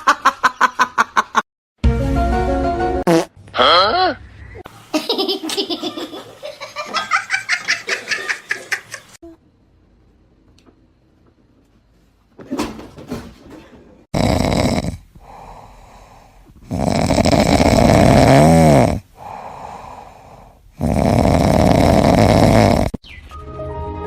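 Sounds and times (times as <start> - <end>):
loud snoring: 14.1 - 23.0.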